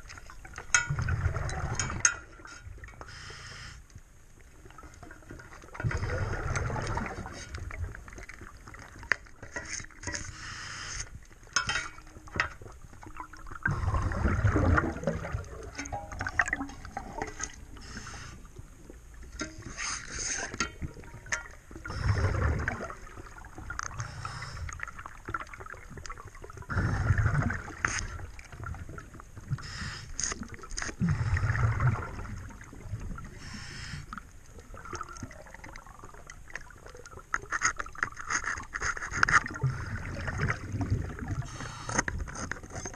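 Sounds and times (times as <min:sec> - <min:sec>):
exhaled bubbles rushing underwater: 0:00.0 - 0:03.0, 0:04.6 - 0:09.1, 0:12.2 - 0:19.3, 0:20.8 - 0:38.0, 0:39.4 - 0:42.3.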